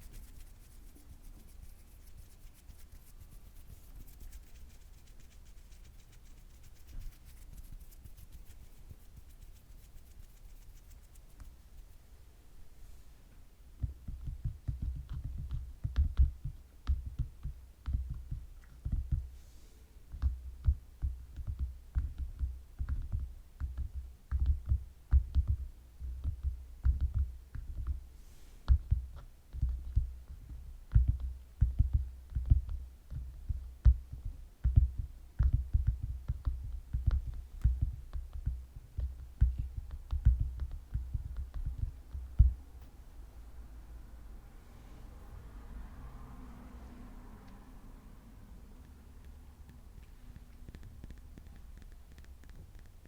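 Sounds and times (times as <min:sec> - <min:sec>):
fingertips tapping: 0:00.0 - 0:12.0, 0:28.7 - 0:42.9, 0:48.7 - 0:53.0.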